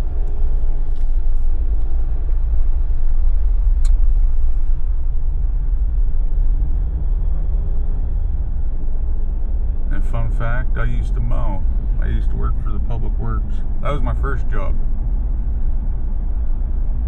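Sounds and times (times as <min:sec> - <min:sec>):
tyre road rumble: 0:00.0 - 0:17.0.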